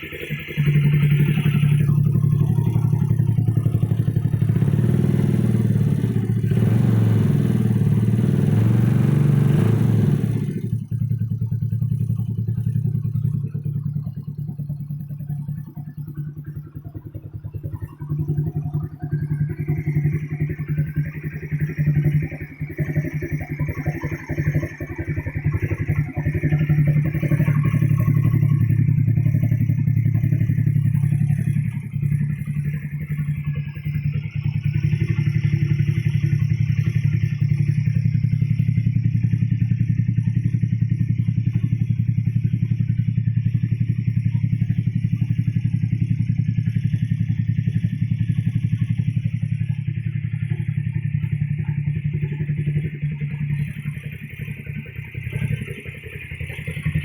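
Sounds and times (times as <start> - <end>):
scooter engine running: 0.0 - 57.0.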